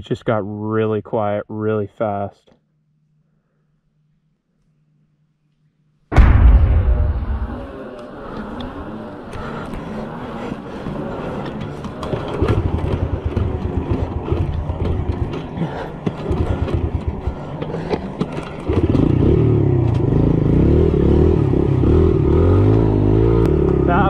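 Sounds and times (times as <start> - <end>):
dirt bike engine revving: 7.2 - 24.0.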